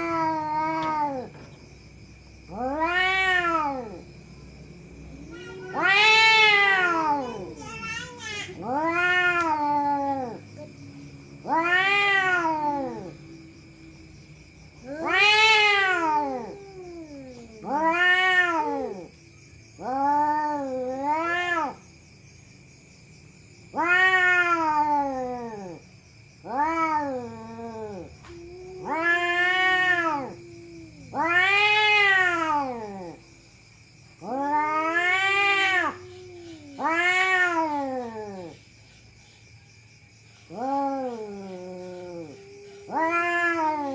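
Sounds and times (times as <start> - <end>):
cat yowling: 0.0 - 1.4, 2.4 - 4.0, 5.1 - 10.8, 11.4 - 13.4, 14.8 - 19.2, 19.8 - 21.8, 23.7 - 25.8, 26.4 - 33.2, 34.2 - 38.5, 40.5 - 43.9.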